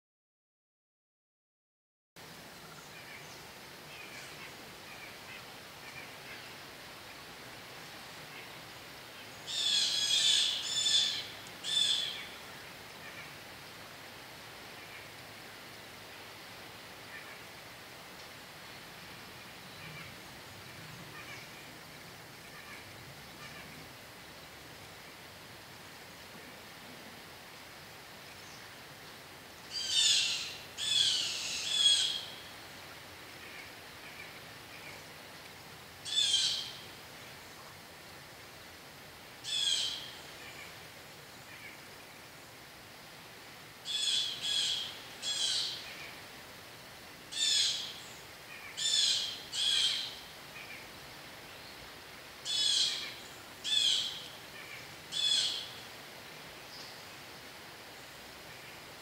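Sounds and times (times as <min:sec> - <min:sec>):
faint steady background noise: 0:02.2 - 0:59.0
bird calling: 0:09.2 - 0:12.4, 0:29.7 - 0:32.5, 0:36.0 - 0:36.8, 0:39.4 - 0:40.8, 0:43.9 - 0:46.2, 0:47.3 - 0:50.8, 0:52.4 - 0:55.8.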